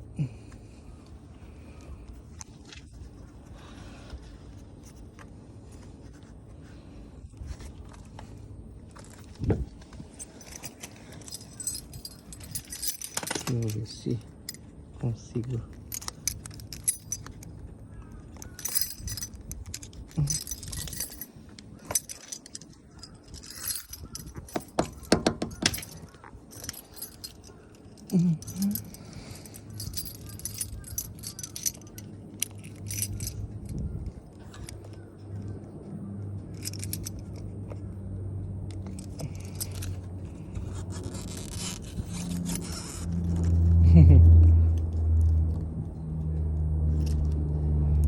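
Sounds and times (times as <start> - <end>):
keys jangling: 8.9 - 37.9, 38.7 - 47.5
metal clicks and scrapes: 15.4 - 35.6, 36.4 - 37.8, 38.7 - 43.8.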